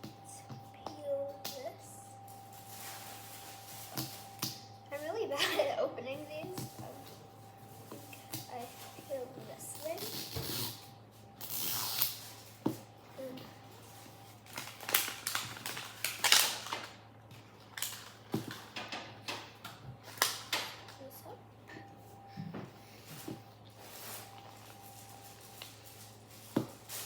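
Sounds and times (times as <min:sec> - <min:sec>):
plastic packaging crinkling: 0:02.4 - 0:05.2, 0:13.7 - 0:19.4, 0:23.7 - 0:27.0.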